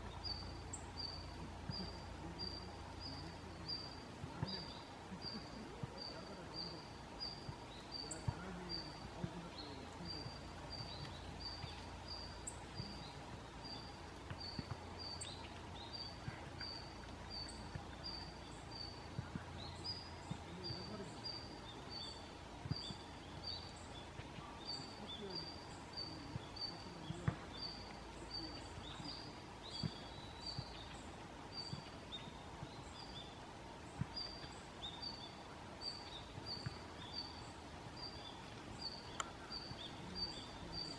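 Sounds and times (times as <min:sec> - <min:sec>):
soft ticks: 0:38.4 - 0:40.9.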